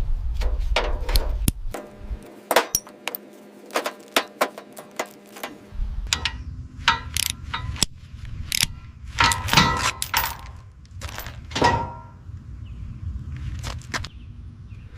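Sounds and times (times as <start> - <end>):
steady low rumble: 0.0 - 14.9
metallic clanks and knocks: 0.4 - 8.0, 9.2 - 12.2.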